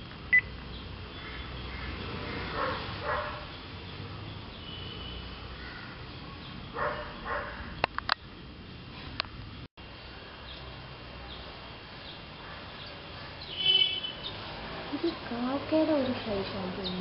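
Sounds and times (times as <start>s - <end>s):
sharp clicks: 7.8s - 8.2s.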